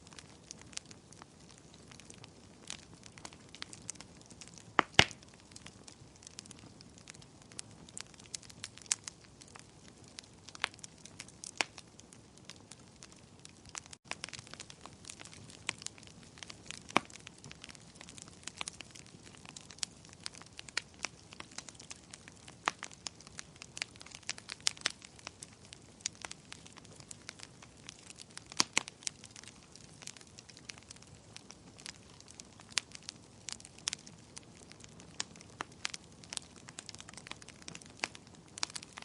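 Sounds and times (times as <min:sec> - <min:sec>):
faint steady hiss: 0:00.0 - 0:39.0
fire crackling and popping: 0:00.0 - 0:39.0.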